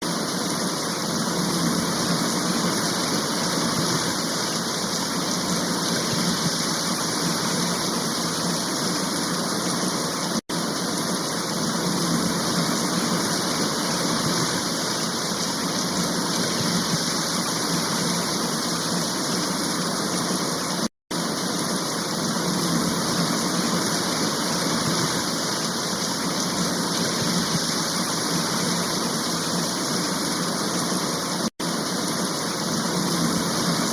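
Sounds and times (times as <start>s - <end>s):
dam water rushing: 0.0s - 33.9s.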